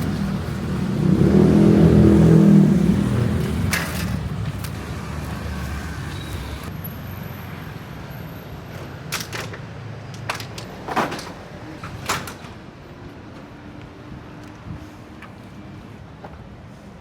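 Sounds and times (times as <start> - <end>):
vehicle engine pulling off: 0.0 - 6.7.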